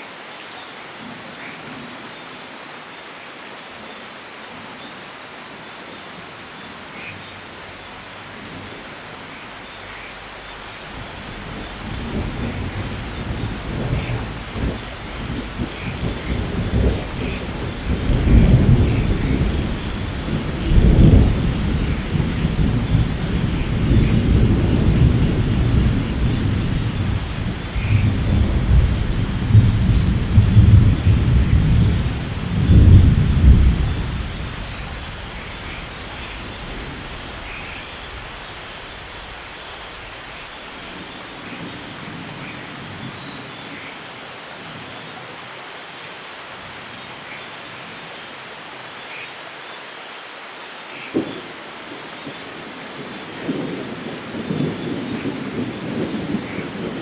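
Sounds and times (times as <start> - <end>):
heavy rain falling: 0.0 - 57.0
rolling thunder: 10.4 - 42.4, 53.3 - 57.0.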